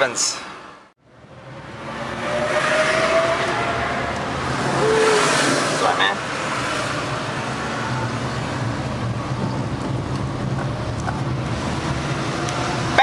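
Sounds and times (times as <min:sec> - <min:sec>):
tyre and road noise: 0:00.0 - 0:13.0
vehicle engines humming: 0:00.5 - 0:13.0.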